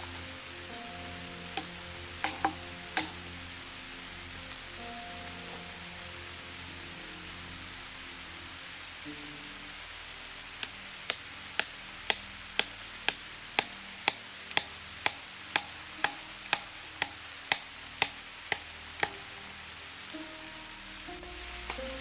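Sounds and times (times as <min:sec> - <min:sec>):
steady hiss: 0:00.0 - 0:22.0
hand tool knocking on wood: 0:13.1 - 0:19.1.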